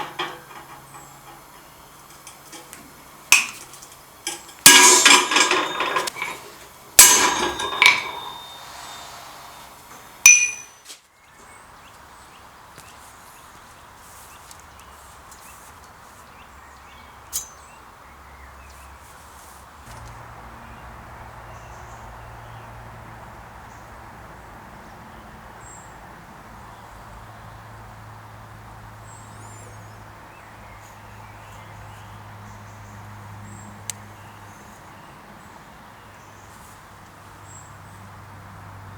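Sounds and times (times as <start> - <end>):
hammer blows on steel: 3.3 - 10.8.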